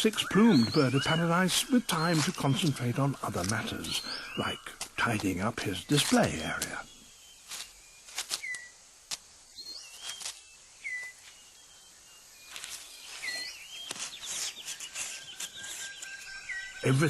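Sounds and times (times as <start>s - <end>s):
whistled bird calls: 0.0s - 8.8s, 9.5s - 17.0s
sharp crackles: 0.0s - 11.4s
insect buzz: 0.0s - 17.0s.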